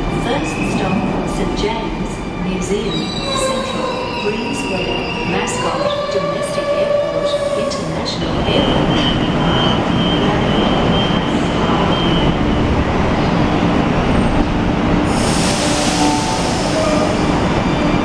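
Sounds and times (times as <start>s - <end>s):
electric train rumble and hum: 0.0s - 18.0s
loud air hiss: 15.1s - 17.1s.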